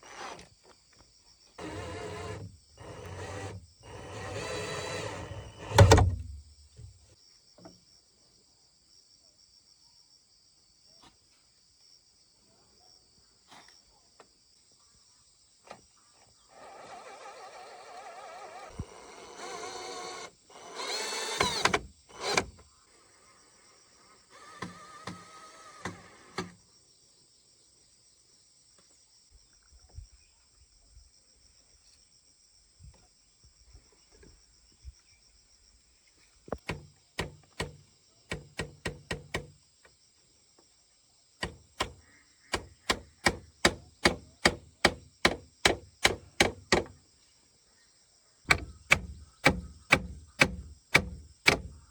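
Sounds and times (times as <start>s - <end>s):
hammer striking wood: 36.6s - 39.6s, 41.4s - 47.0s, 48.5s - 51.9s.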